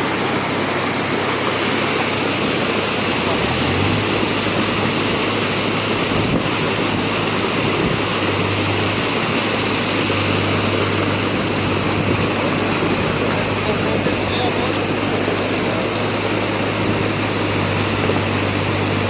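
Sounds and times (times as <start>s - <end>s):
river rushing: 0.0s - 19.0s.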